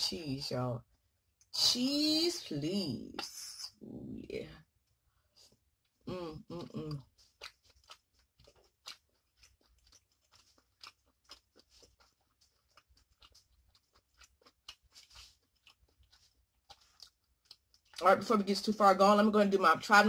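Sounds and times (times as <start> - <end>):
person chewing with wet clicks: 4.8 - 18.3
person humming: 6.1 - 7.0.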